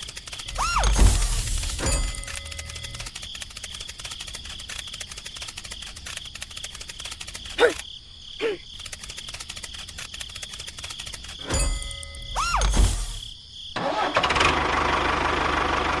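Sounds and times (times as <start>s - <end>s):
insect trilling: 0.0s - 1.4s, 12.2s - 13.7s.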